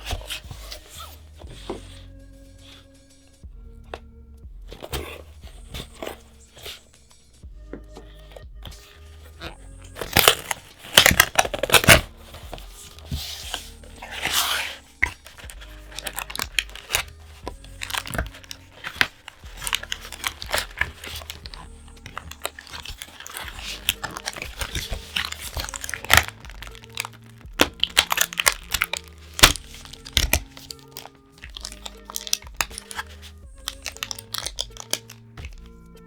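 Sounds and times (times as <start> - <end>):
cards being handled: 0.0 - 36.0
quiet background music: 0.0 - 36.0
foil wrapper crinkling and tearing: 8.3 - 35.8.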